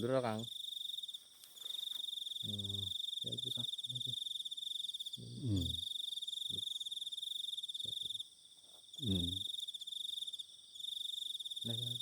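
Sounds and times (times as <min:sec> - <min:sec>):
crickets chirping: 0:00.0 - 0:12.0
person's voice: 0:05.4 - 0:05.8, 0:09.0 - 0:09.4.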